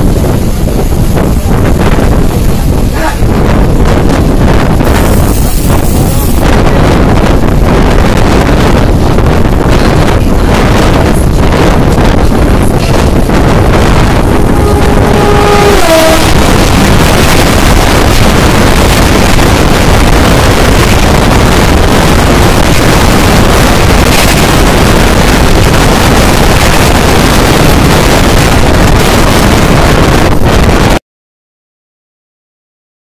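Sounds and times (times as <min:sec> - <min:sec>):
wind buffeting microphone: 0:00.0 - 0:31.0
train horn: 0:14.0 - 0:18.2.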